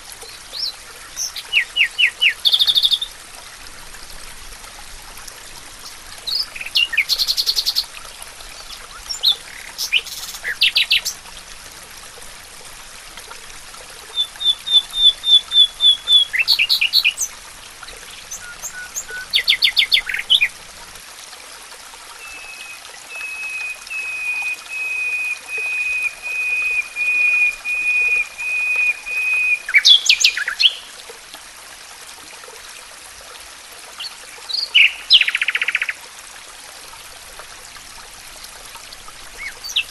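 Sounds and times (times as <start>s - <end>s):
faint steady hiss: 0.0s - 39.9s
songbirds chirping and trilling: 39.4s - 39.9s.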